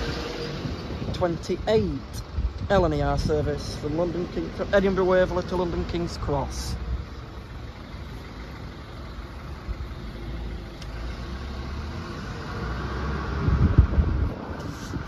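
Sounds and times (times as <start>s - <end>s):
wind rumbling on microphone: 0.0s - 3.9s, 11.9s - 15.0s.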